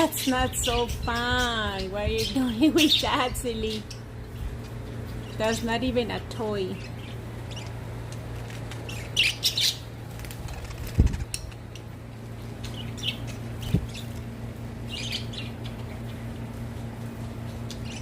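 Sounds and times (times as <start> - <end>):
steady low hum: 0.0 - 18.0
budgerigars chirping: 6.8 - 7.8, 8.9 - 9.9, 12.6 - 14.2, 14.9 - 16.2.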